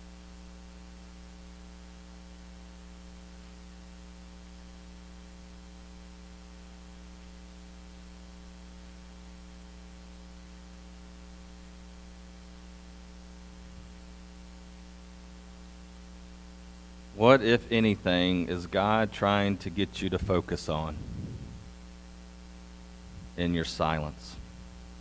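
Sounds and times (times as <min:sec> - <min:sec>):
electrical mains hum: 0:00.0 - 0:25.0
faint hiss: 0:16.8 - 0:25.0.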